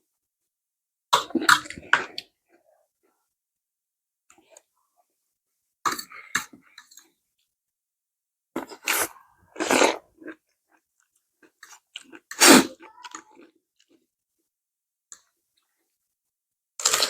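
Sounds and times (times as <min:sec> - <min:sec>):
noisy bites or slurps: 0:08.6 - 0:10.0, 0:12.3 - 0:13.2
chewing and crunching food: 0:08.6 - 0:14.1.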